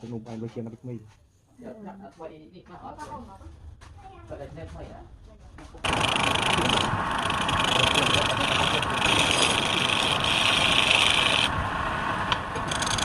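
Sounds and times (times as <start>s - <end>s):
wood lathe cutting: 5.8s - 13.0s.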